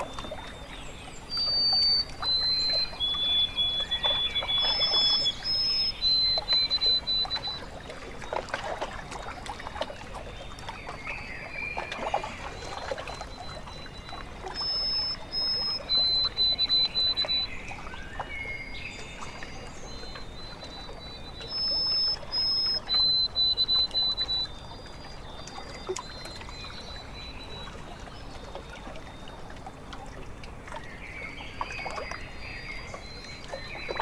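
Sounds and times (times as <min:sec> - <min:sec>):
bird singing high notes: 0:00.0 - 0:07.6, 0:13.2 - 0:17.6, 0:20.3 - 0:25.1
small waves lapping: 0:00.0 - 0:34.0.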